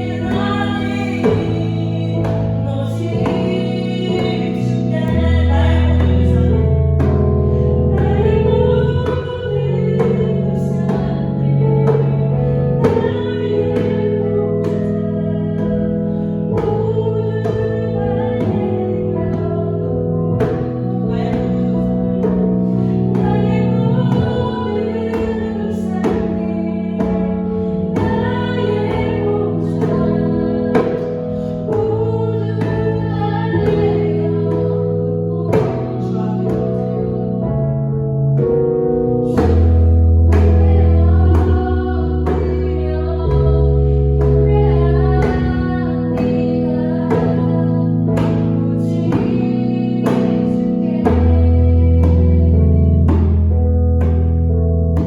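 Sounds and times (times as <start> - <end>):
person singing worship song: 0.0 - 54.3
sustained chordal accompaniment: 0.0 - 55.0
djembe beating steady rhythm: 38.6 - 54.4.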